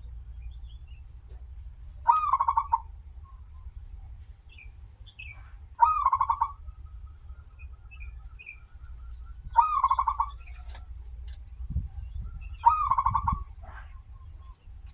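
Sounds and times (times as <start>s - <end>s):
low steady hum: 0.0s - 14.9s
small birds chirping: 0.0s - 14.9s
dove cooing: 2.0s - 3.0s, 5.8s - 6.7s, 8.1s - 10.8s, 12.3s - 14.2s.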